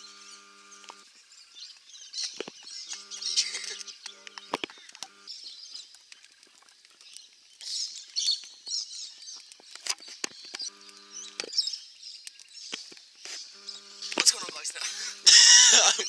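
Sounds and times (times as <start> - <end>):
small birds chirping: 0.0 - 16.0
sharp clicks and rustles: 1.7 - 11.6.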